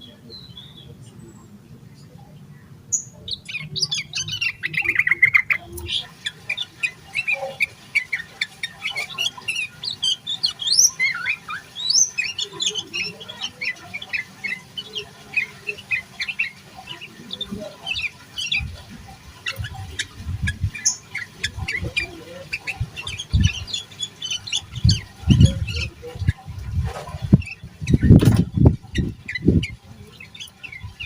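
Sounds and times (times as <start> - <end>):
bird chirping: 0.0 - 31.0
low thuds: 26.5 - 29.6.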